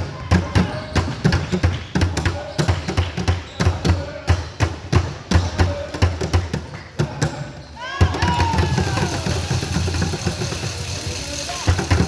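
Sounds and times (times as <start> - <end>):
basketballs bouncing on gym floor: 0.0 - 12.0
sneaker squeaks: 0.1 - 4.0.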